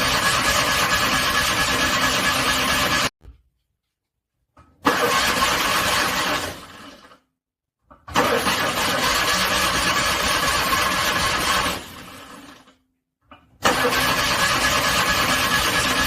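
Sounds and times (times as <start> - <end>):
car engine cranking on starter: 4.8 - 6.8, 8.1 - 11.9, 13.6 - 16.0.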